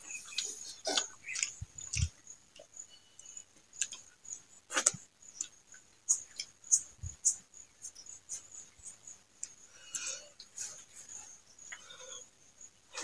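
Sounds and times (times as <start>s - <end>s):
fingers squishing rice on plate: 0.0s - 4.1s
chewing and mouth smacks: 0.2s - 4.1s.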